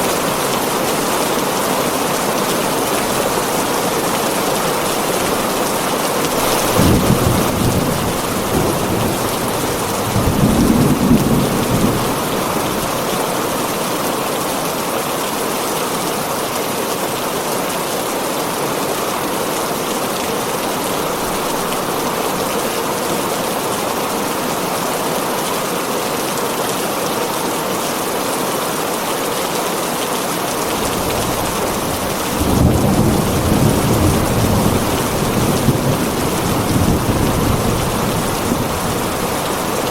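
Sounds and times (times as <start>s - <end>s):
thunder rolling: 0.0s - 13.0s, 30.7s - 39.9s
heavy rain on a tin roof: 0.0s - 39.9s.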